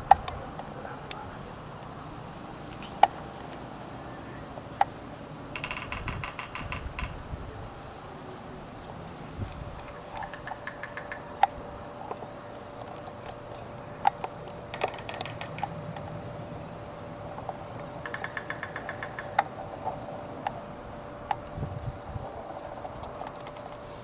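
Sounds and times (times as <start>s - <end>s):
woodpecker tapping on wood: 5.5s - 7.3s, 9.8s - 13.4s, 14.0s - 16.3s, 17.5s - 20.0s.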